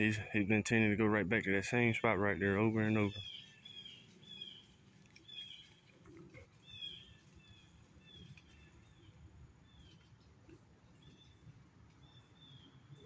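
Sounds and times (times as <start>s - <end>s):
bird chirping: 1.7s - 13.0s
soft rustle: 2.7s - 12.4s.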